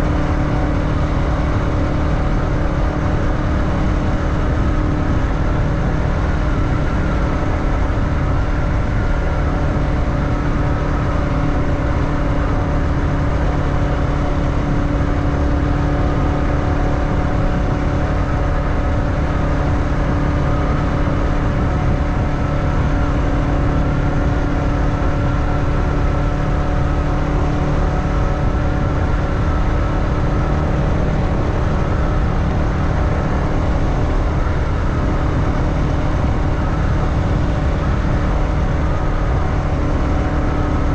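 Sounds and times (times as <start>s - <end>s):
motorbike engine running: 0.0s - 40.9s
wind noise on microphone: 0.0s - 40.9s.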